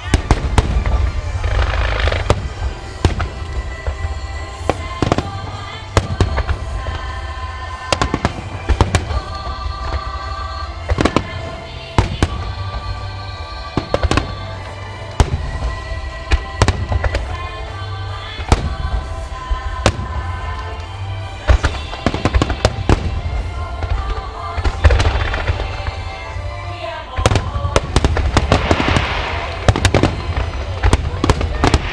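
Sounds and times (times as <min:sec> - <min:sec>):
firework shells bursting: 0:00.0 - 0:31.9
music: 0:00.0 - 0:31.9.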